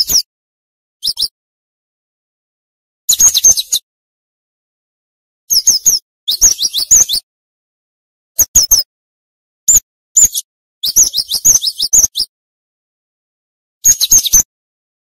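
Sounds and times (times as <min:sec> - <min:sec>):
bird singing high sharp chirps: 0:00.0 - 0:00.3, 0:01.0 - 0:01.4, 0:03.1 - 0:03.9, 0:05.5 - 0:07.3, 0:08.4 - 0:08.9, 0:09.7 - 0:12.3, 0:13.8 - 0:14.5.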